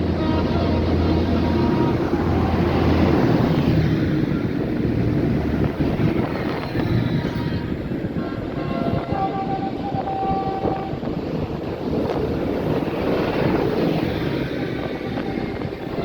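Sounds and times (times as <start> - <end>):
tractor diesel engine passing: 0.0 - 16.0.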